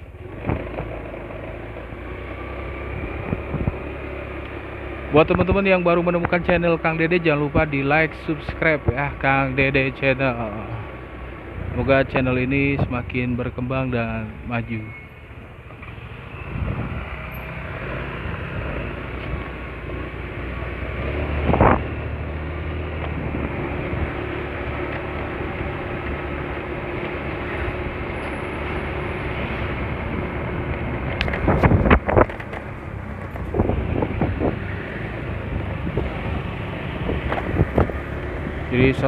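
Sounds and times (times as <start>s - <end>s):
scooter engine running: 0.0s - 5.1s, 21.5s - 39.0s
wind on microphone: 3.0s - 3.9s, 16.5s - 17.1s, 21.4s - 22.0s, 29.8s - 38.7s.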